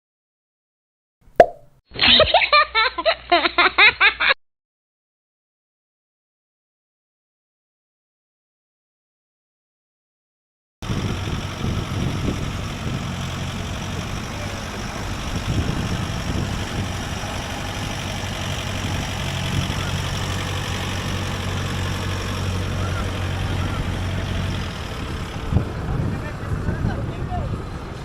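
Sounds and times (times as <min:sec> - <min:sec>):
vehicle engine idling low hum: 0:10.8 - 0:28.0.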